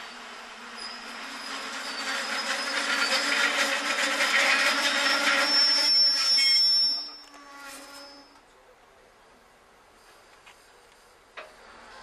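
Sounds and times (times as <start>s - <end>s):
wheels over rail joints: 0.0s - 8.5s, 10.4s - 12.0s
high-pitched wheel squeal: 0.7s - 8.4s.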